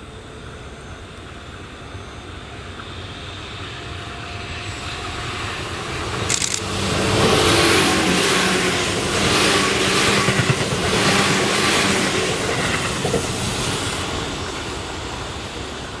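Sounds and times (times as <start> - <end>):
electric train passing: 0.0 - 16.0
wheels clattering on rails: 9.2 - 13.5.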